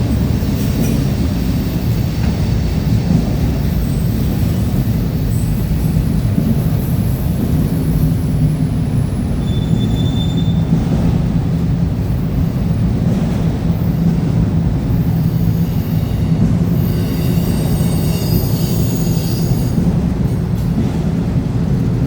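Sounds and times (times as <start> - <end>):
freight train cars rumbling: 0.0 - 22.0
steel wheel squeal: 9.4 - 10.7, 15.0 - 19.8.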